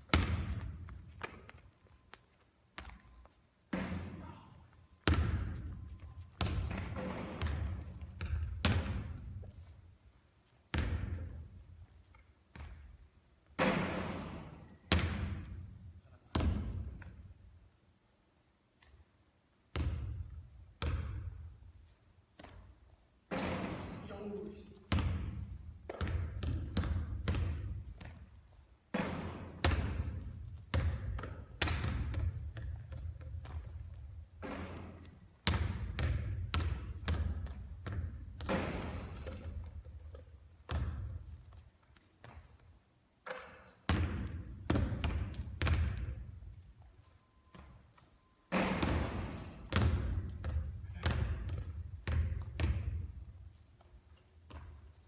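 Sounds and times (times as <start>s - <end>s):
basketball bouncing on court: 0.0s - 1.6s, 2.8s - 9.5s, 10.7s - 11.6s, 12.5s - 17.2s, 19.7s - 21.6s, 23.3s - 41.6s, 42.2s - 42.6s, 43.2s - 46.6s, 48.5s - 53.4s, 54.4s - 55.0s.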